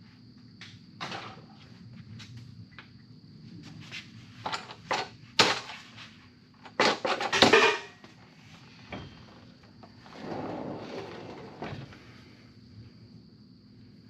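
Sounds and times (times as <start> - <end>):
clanks of hand tools and metal: 6.7 - 8.0.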